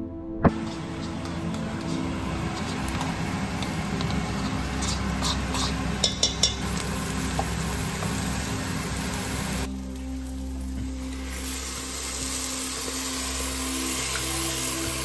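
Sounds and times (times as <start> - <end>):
spatula stirring: 0.5 - 9.6
onions sizzling in a pot: 0.5 - 15.0.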